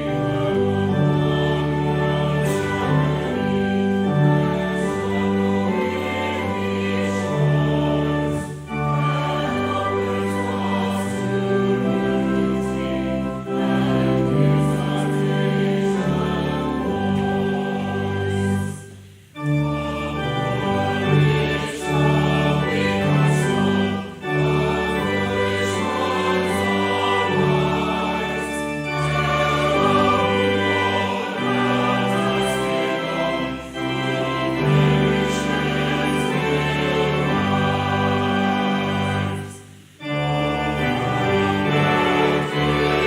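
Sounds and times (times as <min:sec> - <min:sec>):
choir singing: 0:00.0 - 0:43.0
church organ playing a hymn: 0:00.0 - 0:43.0.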